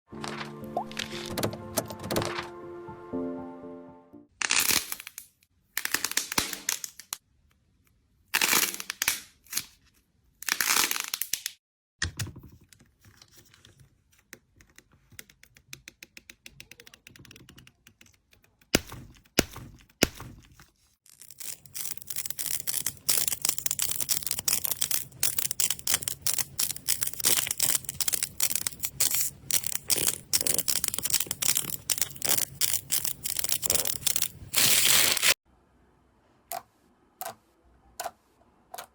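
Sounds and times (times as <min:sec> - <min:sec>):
slime crackling and popping: 0:21.1 - 0:35.4.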